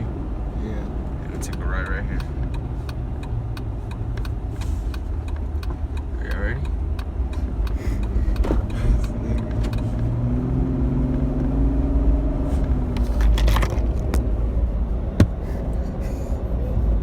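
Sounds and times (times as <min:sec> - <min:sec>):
road rumble and engine hum: 0:00.0 - 0:17.0
steady engine tone: 0:06.0 - 0:17.0.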